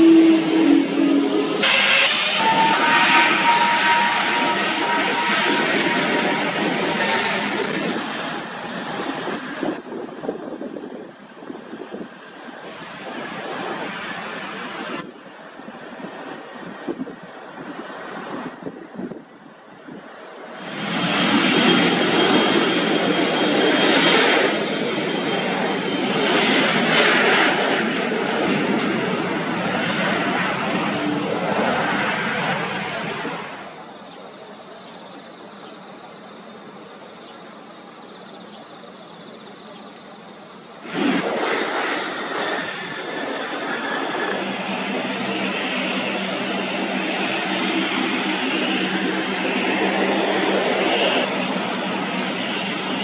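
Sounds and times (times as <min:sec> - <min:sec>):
thin high whine: 0:00.0 - 0:08.7
jet engines roaring: 0:00.0 - 0:53.0
faint high whine: 0:29.2 - 0:53.0.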